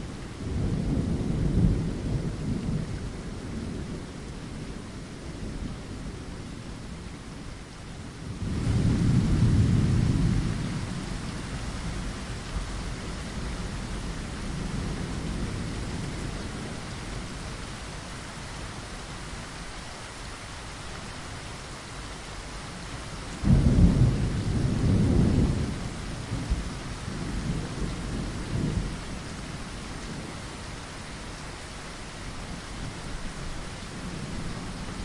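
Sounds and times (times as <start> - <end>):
rain against a window: 0.0 - 35.0
thunder rumbling: 23.4 - 29.4.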